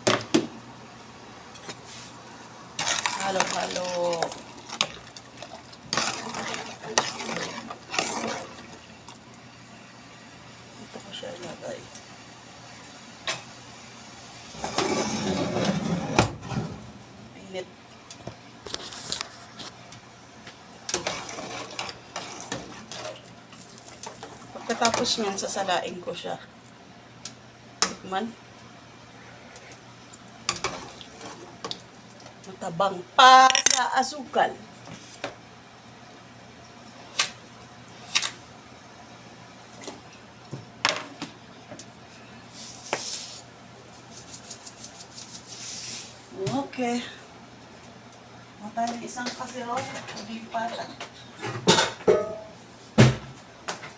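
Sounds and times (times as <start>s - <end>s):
utensil scraping cooking pot: 2.8s - 8.8s, 14.5s - 16.8s, 20.9s - 25.5s
cookware knocks and clinks: 51.6s - 52.5s.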